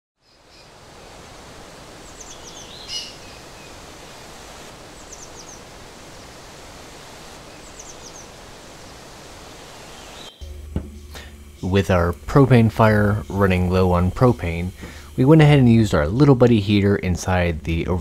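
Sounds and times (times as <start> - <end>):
outdoor ambience rushing hiss: 0.2 - 18.0
loud bird call: 2.0 - 3.7
bird chirping: 2.0 - 3.8, 5.0 - 5.7, 7.5 - 8.4, 9.8 - 12.1.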